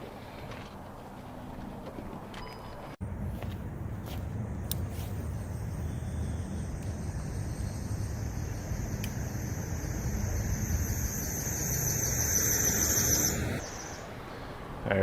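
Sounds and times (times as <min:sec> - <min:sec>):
low rumble of traffic: 0:00.0 - 0:15.0
brakes squealing: 0:03.1 - 0:14.4.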